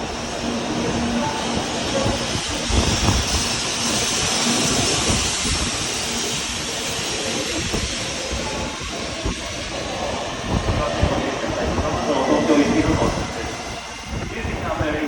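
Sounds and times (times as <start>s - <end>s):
bullet train rushing past: 0.0s - 15.0s.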